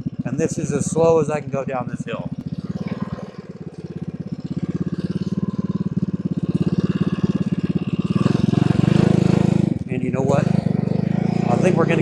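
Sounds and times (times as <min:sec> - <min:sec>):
mini bike engine puttering: 0:00.0 - 0:12.0.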